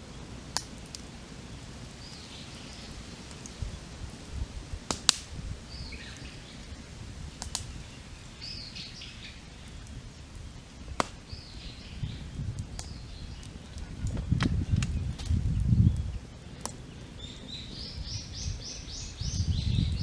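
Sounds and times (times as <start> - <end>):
campfire crackling and popping: 0.0 - 20.0
songbird chirping: 5.7 - 10.2, 11.2 - 20.0.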